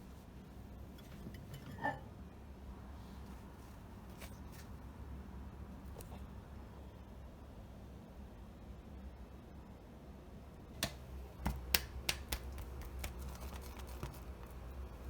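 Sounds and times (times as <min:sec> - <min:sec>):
sharp clicks and taps: 0:10.8 - 0:14.2.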